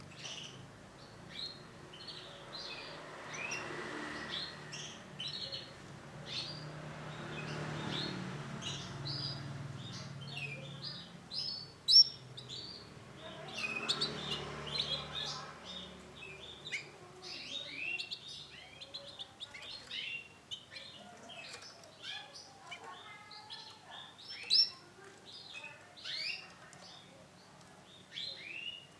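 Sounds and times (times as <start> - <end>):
canaries chirping: 0.0 - 28.9.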